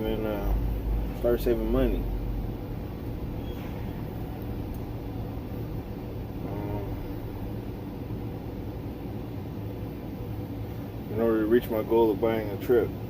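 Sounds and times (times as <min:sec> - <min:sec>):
truck engine humming: 0:00.0 - 0:13.0
faint voice: 0:06.4 - 0:07.2.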